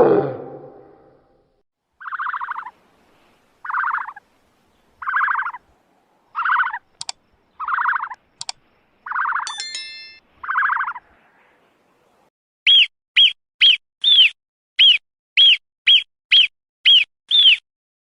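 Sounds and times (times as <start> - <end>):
animal buzzy calls: 6.4 - 6.9
sharp clicks: 6.9 - 7.2, 8.1 - 8.6.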